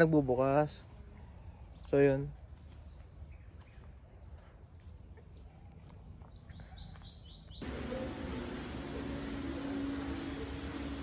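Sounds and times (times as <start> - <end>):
small bird chirping: 1.1 - 7.7
steady hiss with low hum: 7.6 - 11.0.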